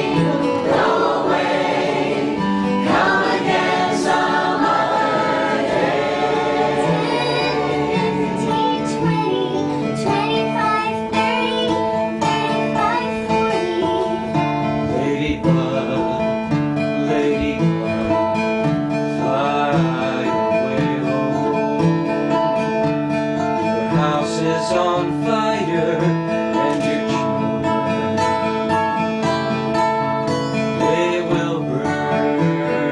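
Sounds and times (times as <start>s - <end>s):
voices singing: 0.0s - 16.3s
acoustic guitar strumming: 0.0s - 32.9s.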